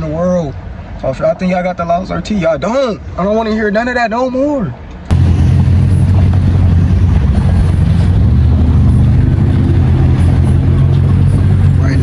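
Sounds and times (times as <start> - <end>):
car engine deep exhaust: 5.1 - 12.0.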